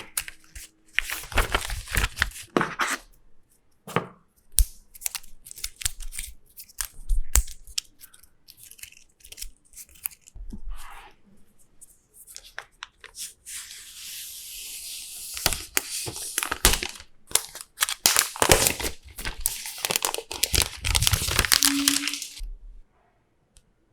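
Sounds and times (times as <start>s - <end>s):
wrapping crinkling: 0.0s - 2.5s, 4.9s - 10.4s, 15.2s - 22.4s
packaging tearing: 0.0s - 3.0s, 4.6s - 10.4s, 15.3s - 22.4s.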